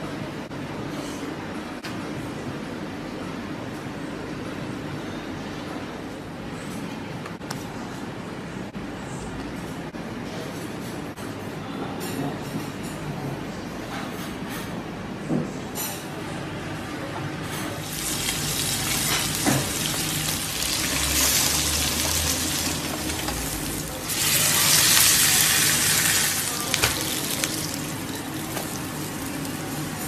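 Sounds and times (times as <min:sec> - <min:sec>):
food sizzling in hot oil: 0:17.8 - 0:30.0.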